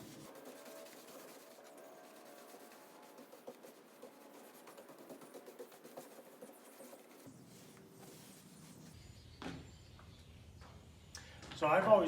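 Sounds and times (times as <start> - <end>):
paint brush strokes on wood: 0.0 - 9.0.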